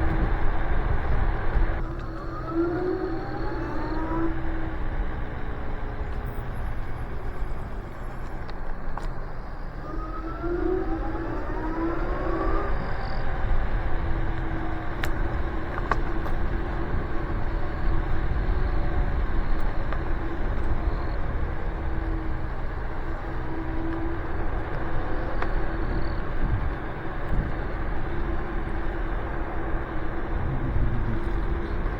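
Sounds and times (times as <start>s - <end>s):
electric scooter motors whining: 0.0s - 31.9s
wind on microphone: 23.8s - 31.9s.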